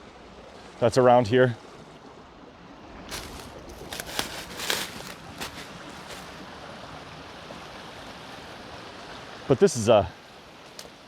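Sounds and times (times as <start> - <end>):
creek running over rocks: 0.1 - 11.0.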